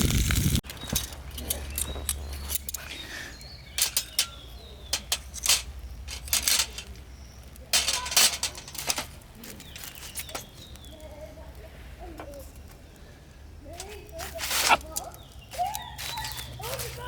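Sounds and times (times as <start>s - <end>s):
sharp clicks and clinks: 0.6s - 11.0s
faint bird chirp: 0.6s - 17.0s.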